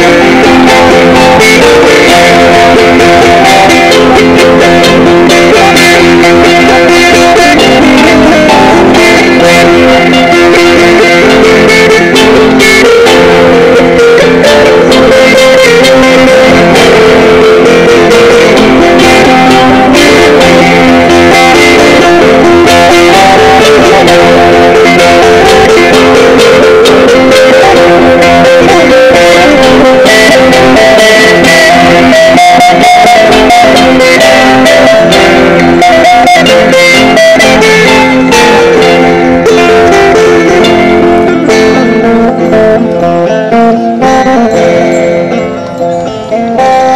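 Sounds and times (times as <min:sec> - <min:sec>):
plucked lute melody: 0:00.0 - 0:46.9.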